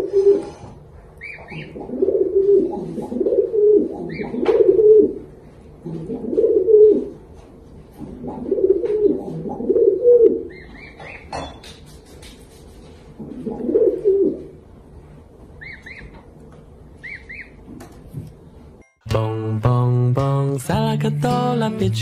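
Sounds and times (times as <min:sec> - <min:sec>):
bird cooing: 0:00.0 - 0:00.6, 0:01.2 - 0:07.2, 0:08.0 - 0:11.1, 0:13.2 - 0:14.6.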